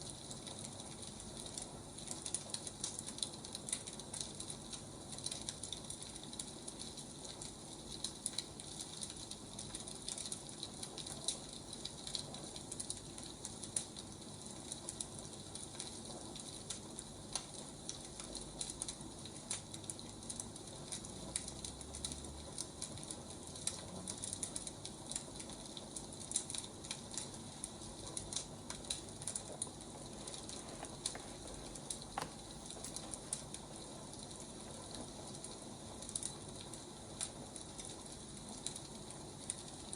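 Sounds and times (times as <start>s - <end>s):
wood fire crackling: 0.0s - 39.9s
steady hiss: 26.8s - 39.9s.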